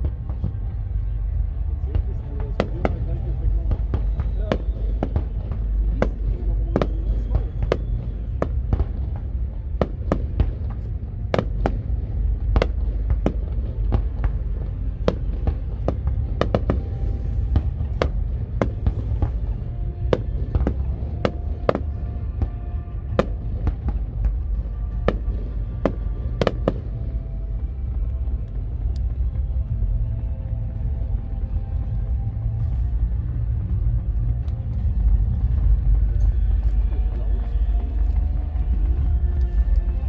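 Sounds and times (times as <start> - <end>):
fireworks bursting: 0.0 - 30.1
faint music: 0.0 - 40.0
low rumble: 0.0 - 40.0.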